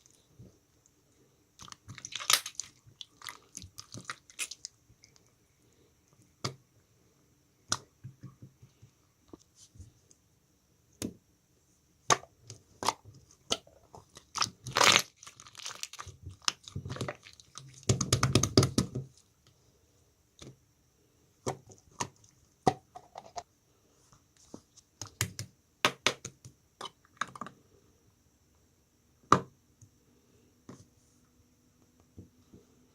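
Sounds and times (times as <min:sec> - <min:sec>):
slime popping and crackling: 0:01.6 - 0:04.8, 0:12.8 - 0:18.9.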